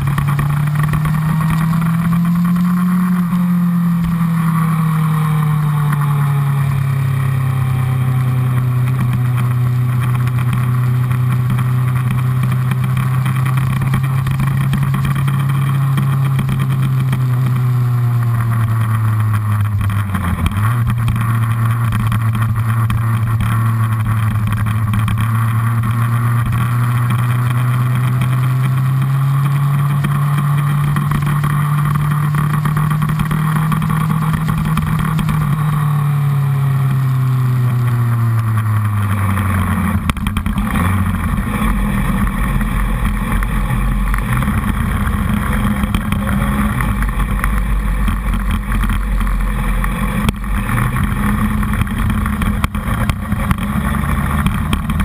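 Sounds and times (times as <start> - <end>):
motorcycle engine running hard: 0.0 - 55.0.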